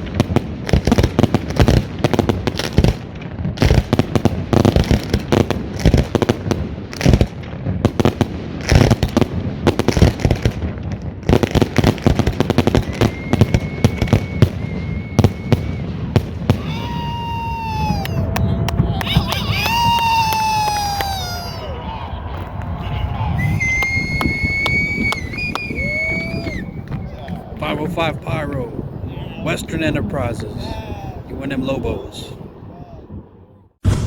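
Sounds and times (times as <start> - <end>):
fireworks bangs and crackling: 0.0 - 34.0
sliding firework whistles: 12.5 - 18.2, 23.0 - 27.0
high steady whistle: 12.6 - 16.0, 23.3 - 26.8
people shouting: 16.5 - 27.6, 30.6 - 31.3.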